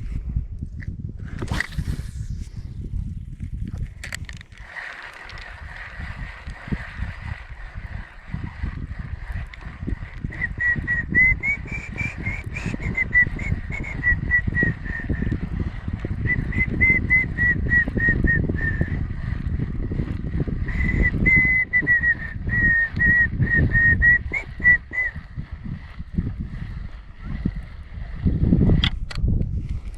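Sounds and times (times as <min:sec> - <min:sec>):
person whistling a tune: 0:10.3 - 0:15.3, 0:16.2 - 0:19.0, 0:20.7 - 0:25.2.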